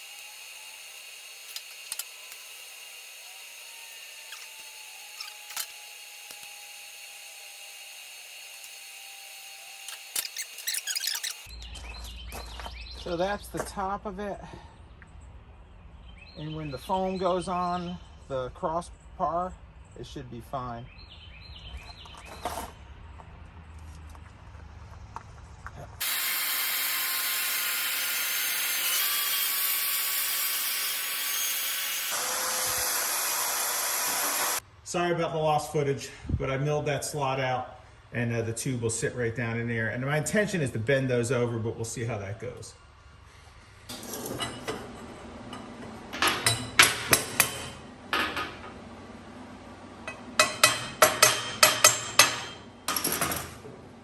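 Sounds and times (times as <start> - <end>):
power tool grinding metal: 0.0 - 11.5, 26.0 - 34.6
hammer striking steel: 46.2 - 48.6, 50.1 - 53.2.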